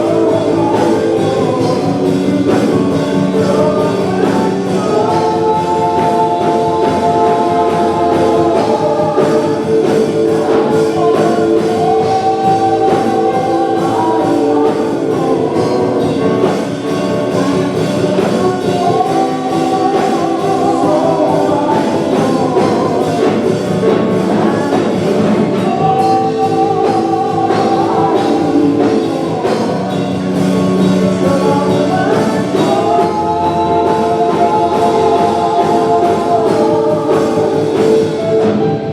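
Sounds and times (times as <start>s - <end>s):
band playing steady beat: 0.0s - 38.9s
voices singing gospel song: 0.0s - 38.9s.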